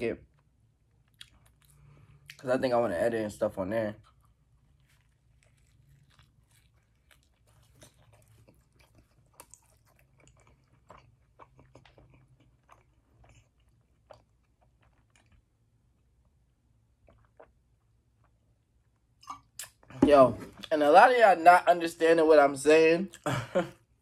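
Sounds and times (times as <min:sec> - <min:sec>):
close-up chewing with crunches: 0:00.9 - 0:02.4, 0:03.9 - 0:15.7.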